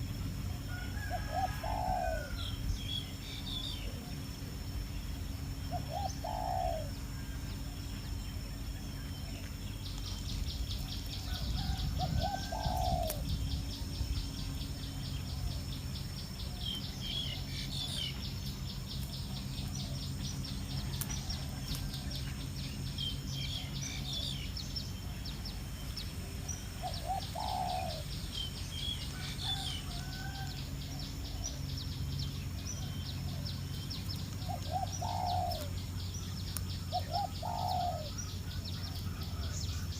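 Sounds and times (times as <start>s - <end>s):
dove cooing: 0.0s - 2.7s, 5.6s - 7.9s, 10.8s - 13.5s, 23.4s - 31.7s, 32.7s - 36.0s, 36.8s - 39.9s.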